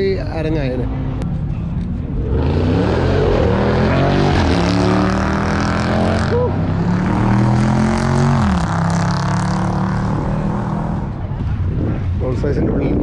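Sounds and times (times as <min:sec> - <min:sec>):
car engine revving: 0:02.1 - 0:12.2.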